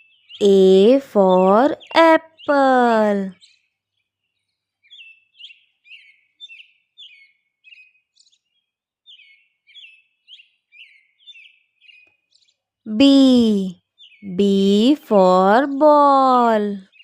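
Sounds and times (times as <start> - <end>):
small bird chirping: 0.0 - 17.0.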